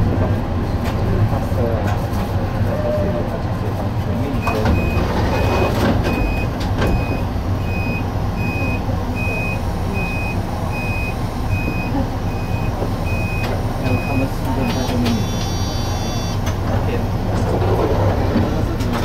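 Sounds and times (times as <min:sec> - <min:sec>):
electric train rumbling: 0:00.0 - 0:19.0
high electronic beep: 0:07.0 - 0:16.4.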